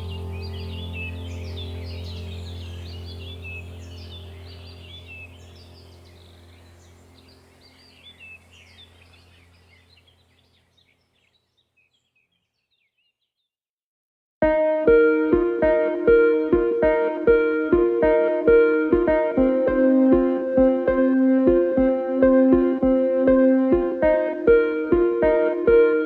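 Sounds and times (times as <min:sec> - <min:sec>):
low steady drone: 0:00.0 - 0:09.6, 0:14.5 - 0:26.0
birds chirping and calling: 0:00.0 - 0:13.1
plucked guitar music: 0:14.4 - 0:26.0.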